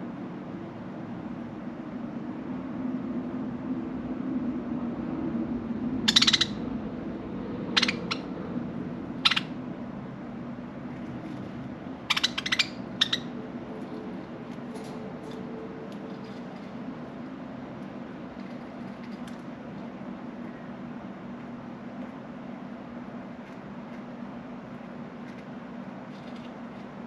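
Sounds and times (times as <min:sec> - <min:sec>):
steady low hum: 0:00.0 - 0:27.0
budgerigars chirping: 0:06.1 - 0:06.6, 0:07.7 - 0:08.4, 0:09.2 - 0:09.6, 0:12.0 - 0:13.4.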